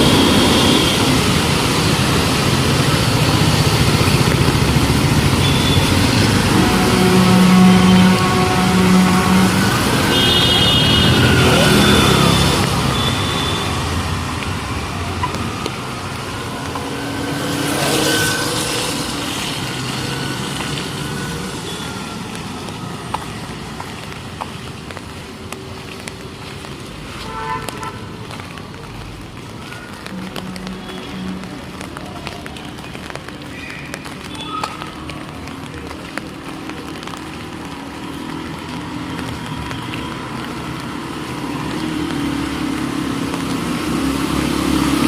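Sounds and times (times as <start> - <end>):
vehicles passing: 0.0 - 45.0
car horn tooting: 5.4 - 13.9, 27.2 - 28.1, 30.1 - 31.7.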